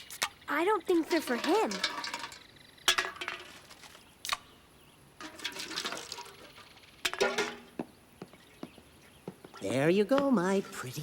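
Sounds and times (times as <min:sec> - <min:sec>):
cartoon liquid pouring and sloshing: 0:05.3 - 0:06.6.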